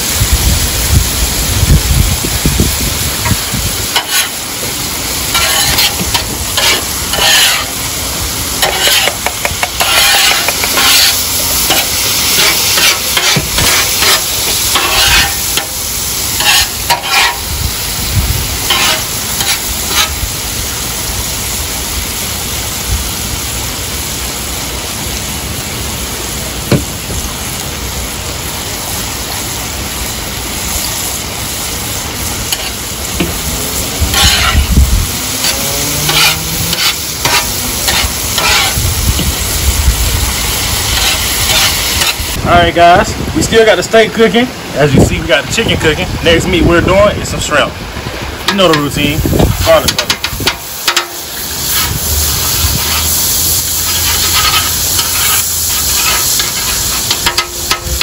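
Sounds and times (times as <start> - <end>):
meat sizzling on griddle: 0.0 - 58.0.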